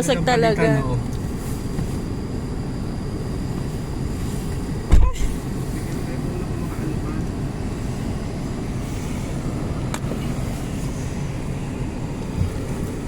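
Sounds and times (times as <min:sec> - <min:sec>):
car engine running: 0:00.0 - 0:13.0
thump: 0:04.9 - 0:05.3.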